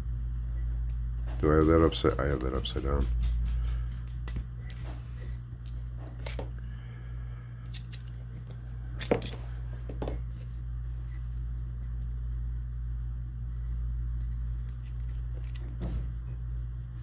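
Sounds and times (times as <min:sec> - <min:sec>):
steady low hum: 0:00.0 - 0:17.0
small metal parts clicking: 0:07.6 - 0:09.4, 0:14.2 - 0:15.9.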